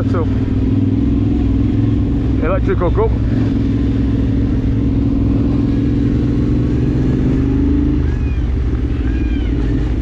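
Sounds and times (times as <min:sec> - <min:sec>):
vehicle engine running: 0:00.0 - 0:10.0
peacock calling: 0:06.6 - 0:10.0.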